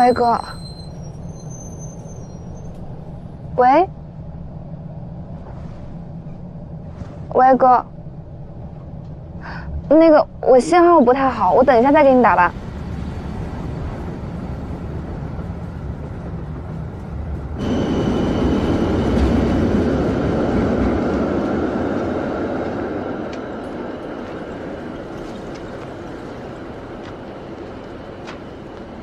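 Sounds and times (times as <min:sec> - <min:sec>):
high-pitched train squeal: 0:00.0 - 0:03.3, 0:17.6 - 0:20.9
train rumbling: 0:00.0 - 0:29.0.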